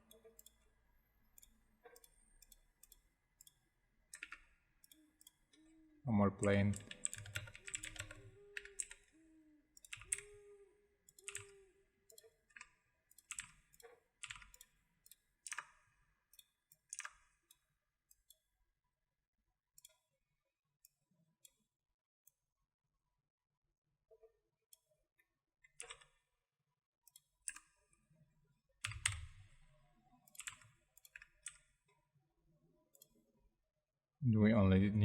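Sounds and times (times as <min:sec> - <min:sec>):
mouse and keyboard clicks: 0:01.4 - 0:05.7, 0:06.5 - 0:09.2, 0:09.8 - 0:15.8, 0:28.9 - 0:29.6.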